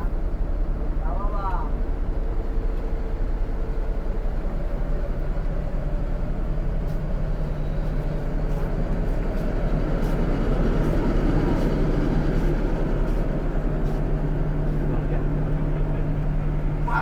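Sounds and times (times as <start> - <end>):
bus engine and road rumble: 0.0 - 17.0
engine hum: 0.0 - 17.0.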